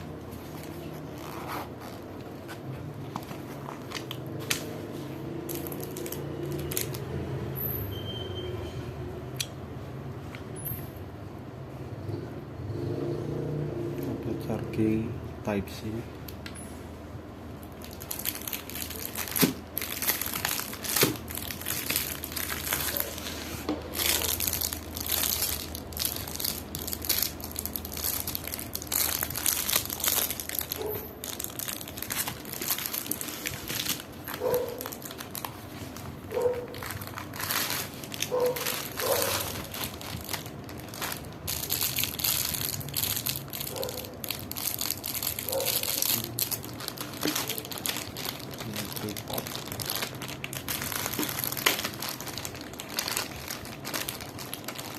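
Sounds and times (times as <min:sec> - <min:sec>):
plastic packaging crinkling: 0:00.0 - 0:07.2, 0:17.6 - 0:54.9
short squeaks: 0:07.6 - 0:08.9.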